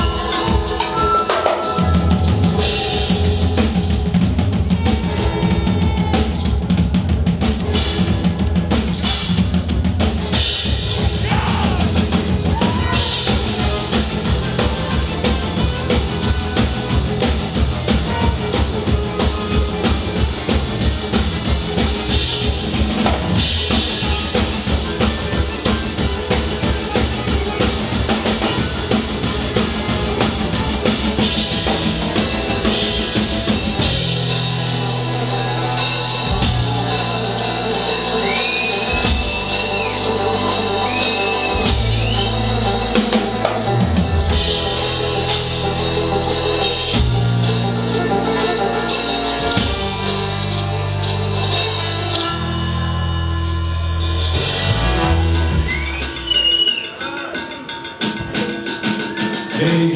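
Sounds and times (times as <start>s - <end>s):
high bending notes: 0.0s - 7.0s, 7.6s - 57.6s
fast kick drum beats: 0.0s - 52.2s
live rock band playing: 0.0s - 59.9s
long held low bass notes: 9.4s - 56.0s.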